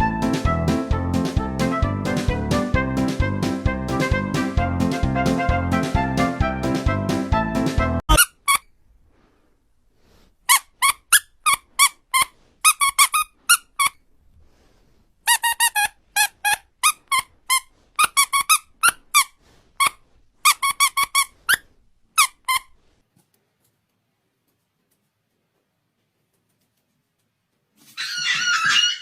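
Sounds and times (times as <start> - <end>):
short high squeaks: 8.1 - 8.8, 10.5 - 14.0, 15.3 - 22.8, 27.9 - 29.0.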